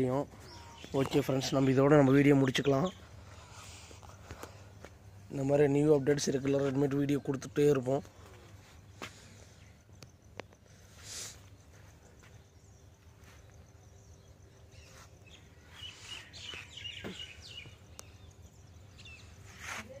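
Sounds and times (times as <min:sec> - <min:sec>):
birds chirping: 0:00.0 - 0:20.0
faint outdoor background noise: 0:00.0 - 0:20.0.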